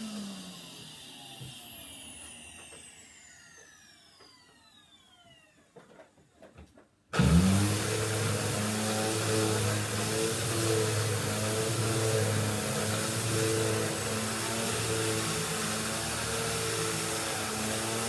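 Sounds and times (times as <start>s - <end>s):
vacuum cleaner motor winding down: 0.0s - 6.1s, 7.1s - 18.0s
electric motor humming and hissing: 7.2s - 18.0s.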